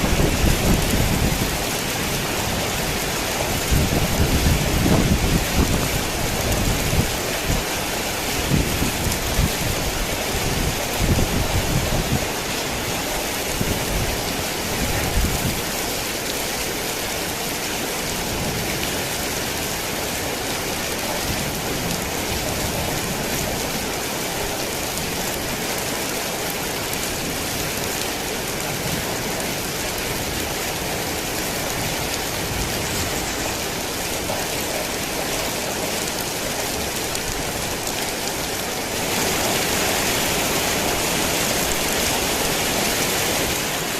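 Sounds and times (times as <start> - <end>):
low rumbles of thunder: 0.0 - 2.4
heavy rain falling: 0.0 - 43.9.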